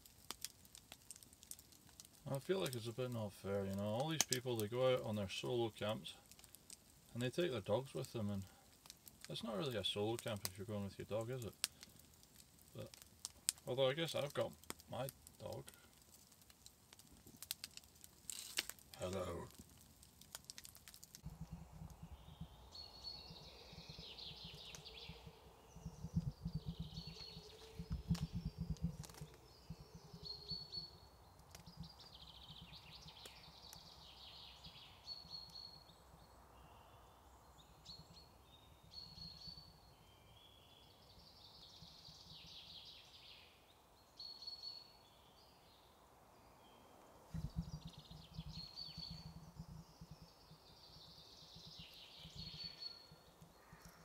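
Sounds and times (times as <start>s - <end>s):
low rumbling: 21.2s - 33.1s, 47.3s - 51.0s
songbird singing: 21.2s - 54.0s.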